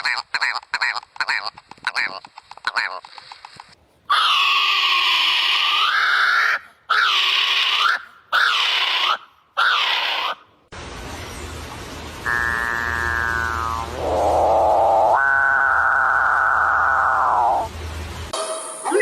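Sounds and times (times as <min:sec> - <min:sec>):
bird screeching call: 0:04.1 - 0:10.4, 0:12.3 - 0:17.7
drawn-out nasal call: 0:12.2 - 0:17.7.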